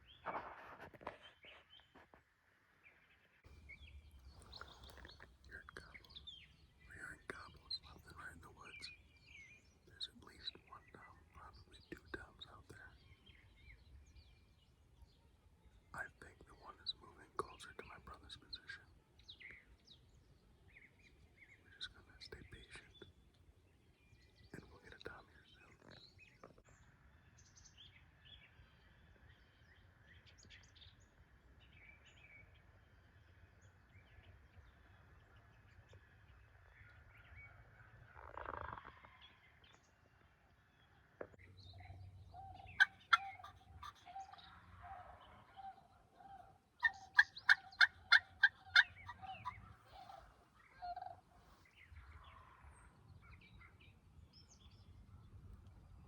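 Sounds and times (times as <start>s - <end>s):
small birds chirping: 0.0s - 2.2s, 2.9s - 56.0s
wild turkey yelping: 42.4s - 51.6s.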